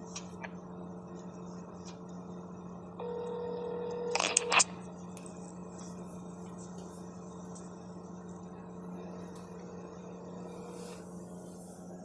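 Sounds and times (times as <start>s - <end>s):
low line hum: 0.0s - 12.0s
telephone ringback tone: 3.0s - 4.2s.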